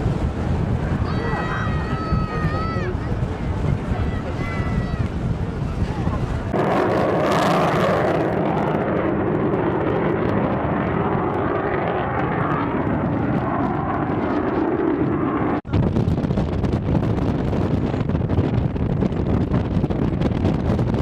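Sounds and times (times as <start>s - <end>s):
wind buffeting microphone: 0.0s - 21.0s
aircraft engine: 5.9s - 15.7s.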